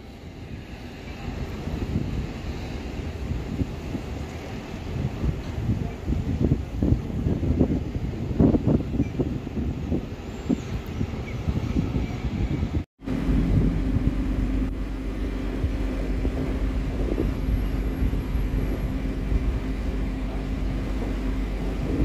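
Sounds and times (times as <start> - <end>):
truck diesel engine rumbling: 13.0 - 22.0.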